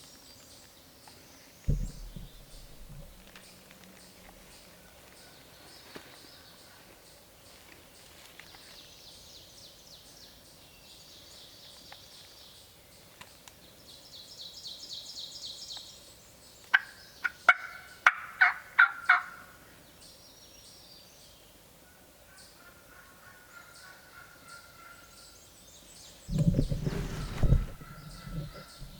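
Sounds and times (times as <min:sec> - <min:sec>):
rapid rattling calls: 0:01.7 - 0:04.6, 0:26.3 - 0:28.9.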